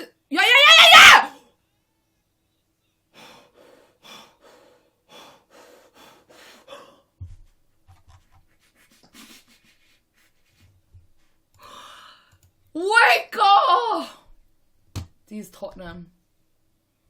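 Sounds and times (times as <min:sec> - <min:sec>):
person panting hard: 0:03.1 - 0:07.6, 0:08.4 - 0:12.3.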